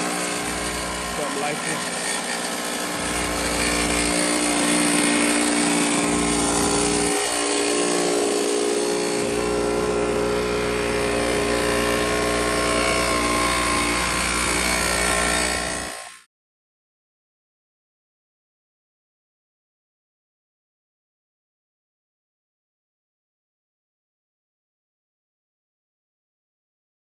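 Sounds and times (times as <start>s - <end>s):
small two-stroke engine running: 0.0s - 16.3s.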